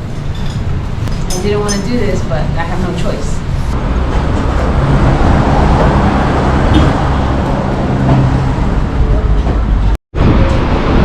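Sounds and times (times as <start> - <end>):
wind on microphone: 3.4 - 11.0.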